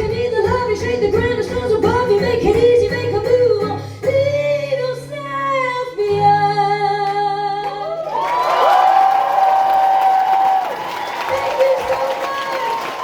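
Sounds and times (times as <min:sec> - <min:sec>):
woman singing: 0:00.0 - 0:08.0, 0:11.3 - 0:13.0.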